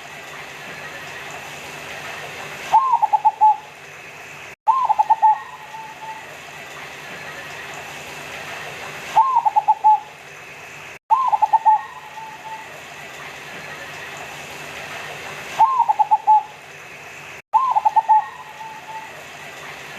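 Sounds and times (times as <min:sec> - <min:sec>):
dove cooing: 0:02.8 - 0:03.7, 0:04.7 - 0:06.3, 0:09.2 - 0:10.1, 0:11.1 - 0:12.7, 0:15.6 - 0:16.5, 0:17.6 - 0:19.2.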